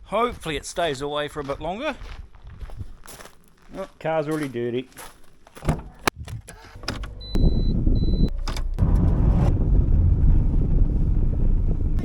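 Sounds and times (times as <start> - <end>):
car engine starting and running: 6.0 - 12.0.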